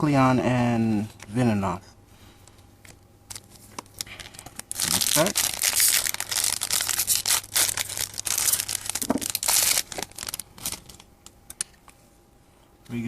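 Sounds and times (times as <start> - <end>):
foil wrapper tearing and crinkling: 3.3 - 11.1.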